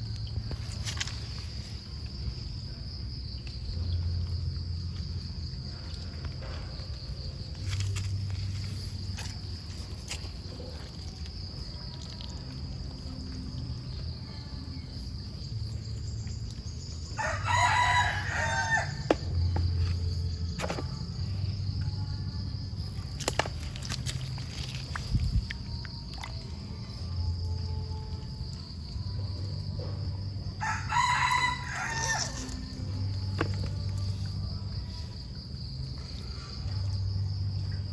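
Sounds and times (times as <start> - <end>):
crickets droning: 0.0 - 37.9
rooster crowing: 17.2 - 19.2, 30.6 - 32.7.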